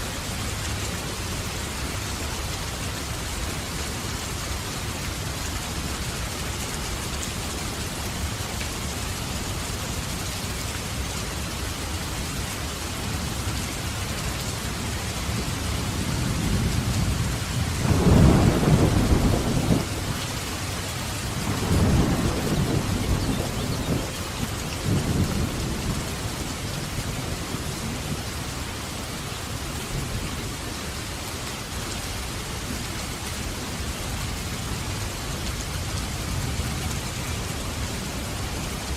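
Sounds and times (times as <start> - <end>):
heavy rain: 0.0 - 38.9
rolling thunder: 16.0 - 20.3, 21.3 - 26.4.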